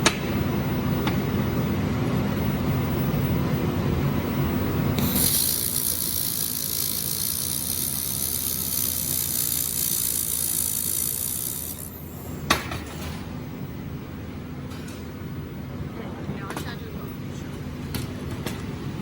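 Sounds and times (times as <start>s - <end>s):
welding machine hissing: 4.9s - 12.4s.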